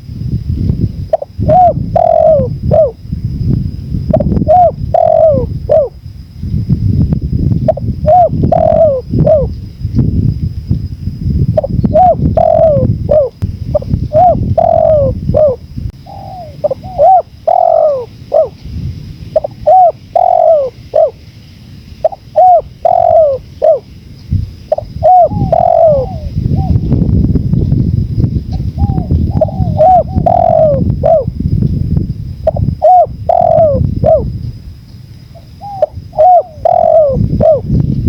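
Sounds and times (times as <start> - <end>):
wind rumble: 0.0 - 38.0
doves cooing: 1.1 - 3.0, 4.1 - 6.0, 7.7 - 9.6, 11.6 - 18.6, 19.3 - 21.2, 22.0 - 24.0, 24.7 - 26.9, 28.5 - 31.3, 32.4 - 34.3, 35.3 - 37.8.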